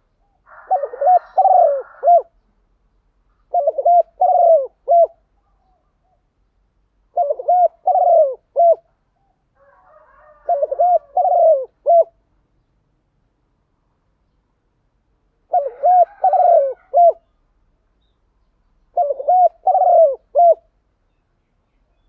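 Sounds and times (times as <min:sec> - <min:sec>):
dove cooing: 0:00.2 - 0:02.4, 0:03.5 - 0:06.2, 0:07.1 - 0:12.2, 0:15.5 - 0:17.3, 0:18.9 - 0:20.7.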